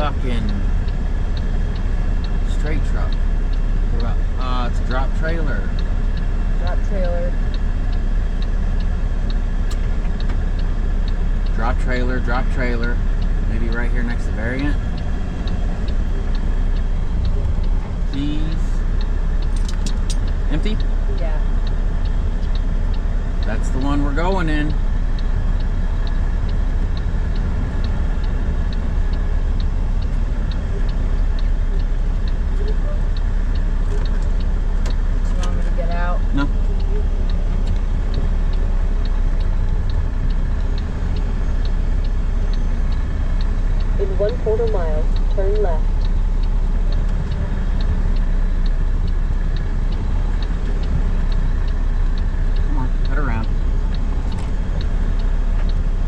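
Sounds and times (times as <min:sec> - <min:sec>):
diesel engine running: 0:00.0 - 0:56.0
turn signal clicking: 0:00.0 - 0:56.0.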